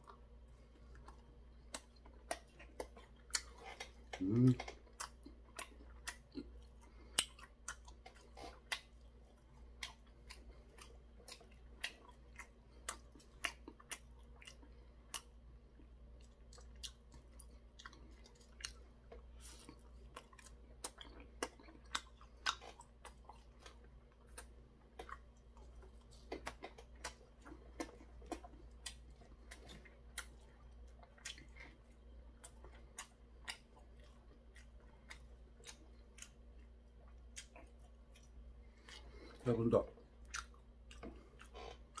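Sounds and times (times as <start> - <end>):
man chewing crispy fried food: 0.0 - 42.0.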